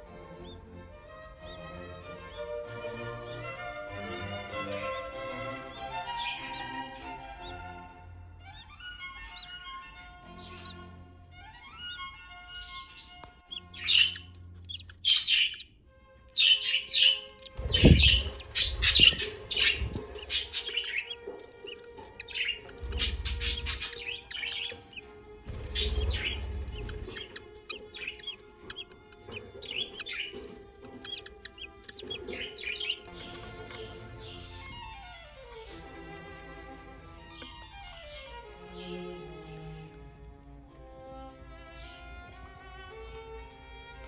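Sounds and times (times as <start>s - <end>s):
budgies chirping: 0.0s - 0.7s, 1.3s - 36.5s
low thumps: 17.6s - 20.5s.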